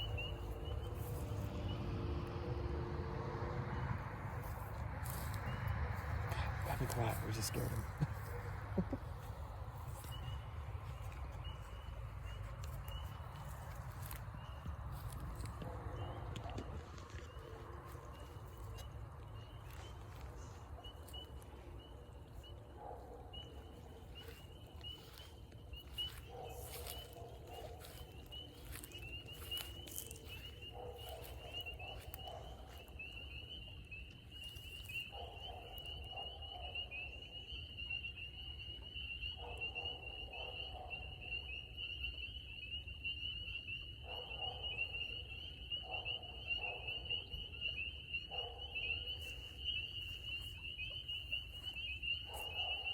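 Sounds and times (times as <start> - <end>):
frogs peeping: 0.0 - 2.3, 3.9 - 52.9.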